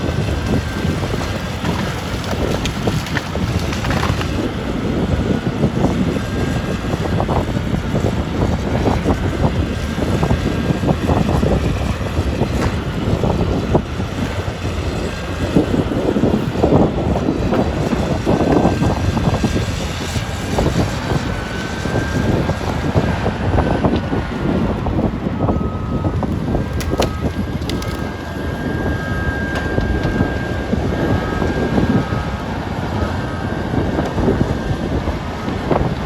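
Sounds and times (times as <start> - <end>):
brush and timber snapping: 0.0 - 7.8, 11.3 - 24.3, 26.2 - 32.6
excavator diesel engine under load: 0.0 - 36.0.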